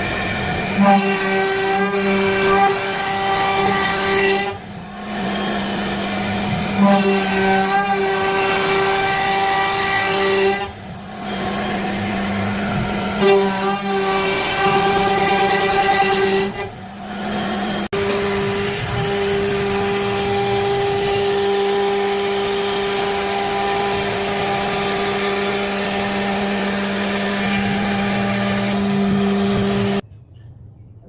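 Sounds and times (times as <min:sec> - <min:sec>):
router spindle whining: 0:00.0 - 0:30.0.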